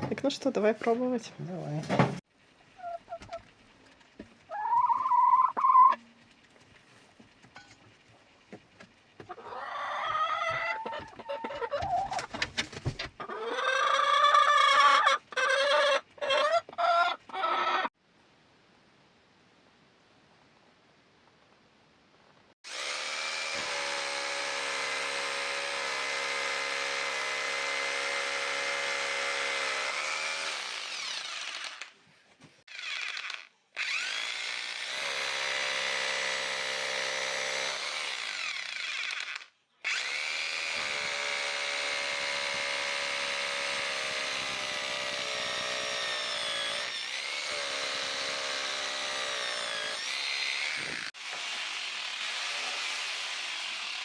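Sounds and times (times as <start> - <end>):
electric drill boring into brick: 22.7 - 31.9, 32.7 - 54.0.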